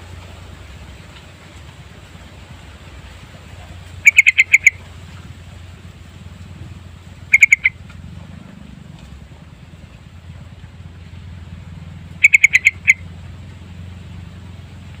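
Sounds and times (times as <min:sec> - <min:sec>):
bulbul chattering calls: 0:03.6 - 0:04.9, 0:07.2 - 0:07.8, 0:12.1 - 0:13.1.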